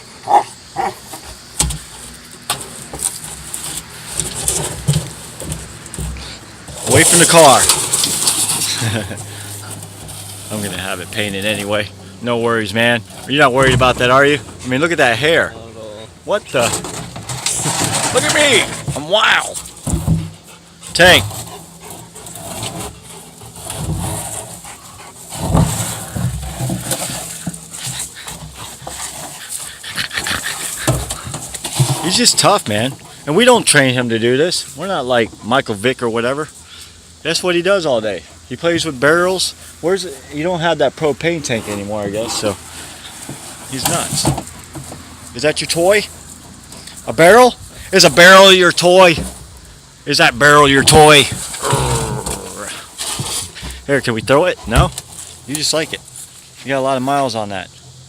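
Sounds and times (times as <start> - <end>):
barrel toy scraping: 0.2 - 12.1, 16.4 - 35.4, 41.4 - 49.5, 50.2 - 57.1
dog panting hard: 27.5 - 31.6.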